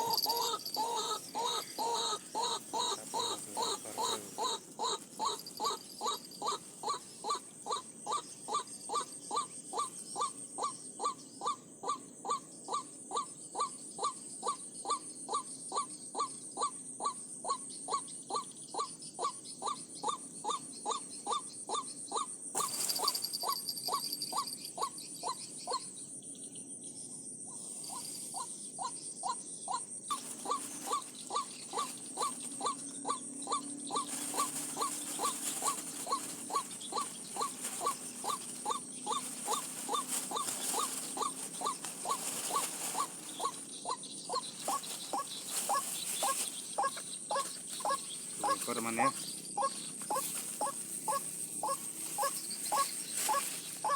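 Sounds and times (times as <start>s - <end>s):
waterhen calling: 0.0s - 7.4s.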